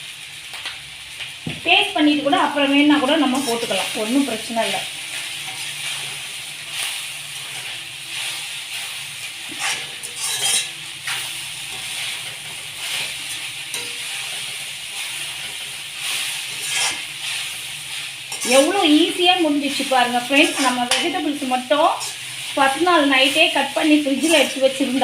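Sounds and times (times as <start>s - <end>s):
rice sizzling in a pan: 0.0s - 25.0s
spatula scraping and knocking pan: 9.4s - 17.6s, 18.3s - 25.0s.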